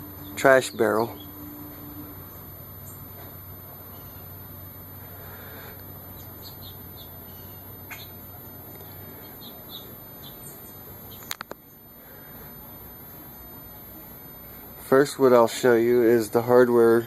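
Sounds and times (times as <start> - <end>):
steady background noise: 0.0 - 17.0
small birds chirping: 0.1 - 1.4, 6.0 - 11.9
sharp clicks: 11.1 - 11.7.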